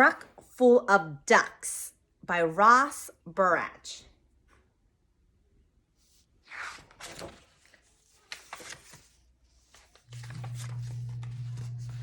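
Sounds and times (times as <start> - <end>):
paper book rustling: 6.0 - 12.0.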